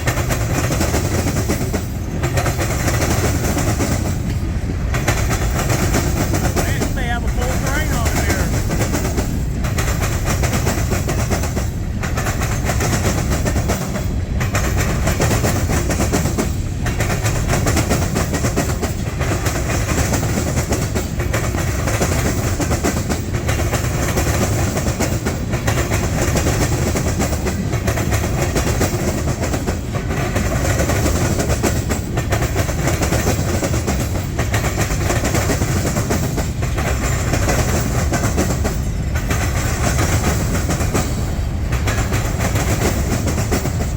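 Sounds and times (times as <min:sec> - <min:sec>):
freight train rumbling past: 0:00.0 - 0:43.9
wheels clicking over rail joints: 0:00.0 - 0:43.9.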